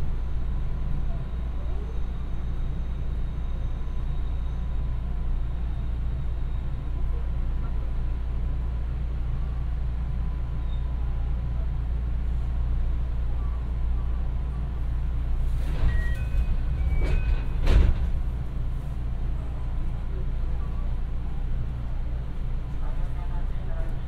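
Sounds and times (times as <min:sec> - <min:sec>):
train wheels rumbling on rail: 0:00.0 - 0:24.0
brief high squeals: 0:10.6 - 0:11.0, 0:15.8 - 0:17.6.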